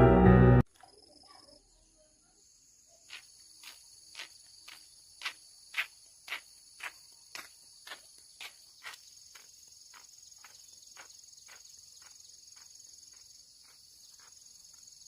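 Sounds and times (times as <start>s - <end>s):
crickets chirping: 0.7s - 15.0s
footsteps walking: 3.1s - 14.9s.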